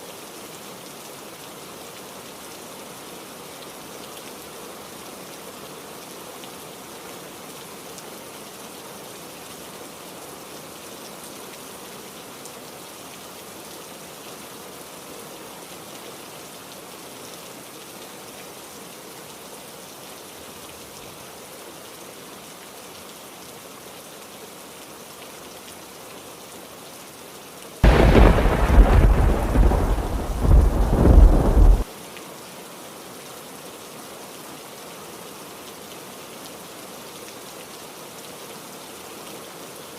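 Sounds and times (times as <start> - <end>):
heavy rain: 0.0 - 39.9
thunder clap rumbling: 27.8 - 31.8.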